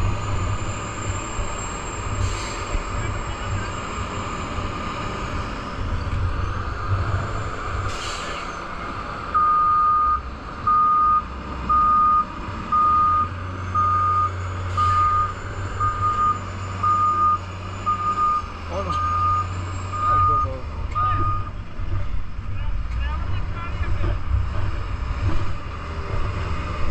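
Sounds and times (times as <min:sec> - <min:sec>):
diesel engine rumbling: 0:00.0 - 0:26.9
short hisses: 0:07.9 - 0:08.6
reversing alarm beeping: 0:09.4 - 0:21.6.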